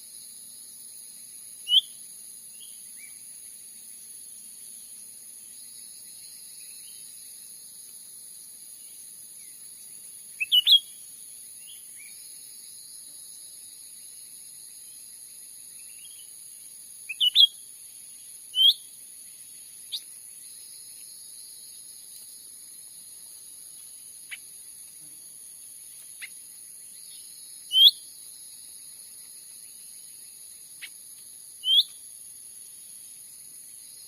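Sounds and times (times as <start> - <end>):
high drone of insects: 0.0 - 34.0
bird chirping calls: 10.4 - 10.9, 17.1 - 17.6.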